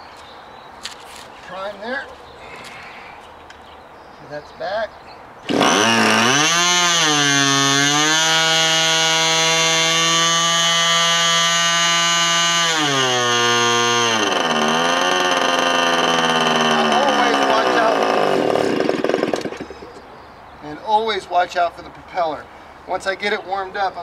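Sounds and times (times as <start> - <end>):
model airplane engine buzzing: 5.5 - 19.9.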